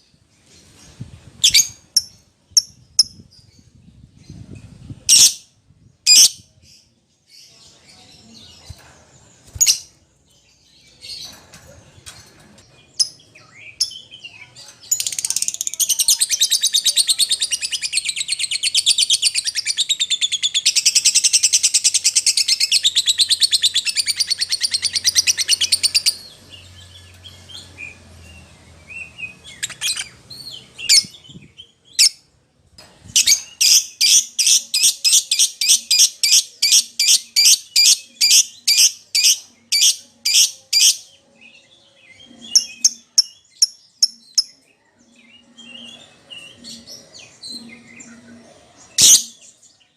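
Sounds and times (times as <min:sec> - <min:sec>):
lovebird chattering and chirping: 0:33.2 - 0:41.0.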